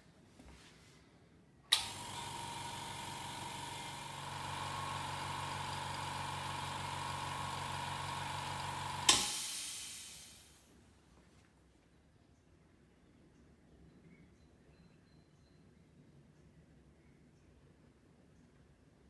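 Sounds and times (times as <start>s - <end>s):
electric air compressor running: 1.7s - 10.6s
air hiss: 9.0s - 10.6s.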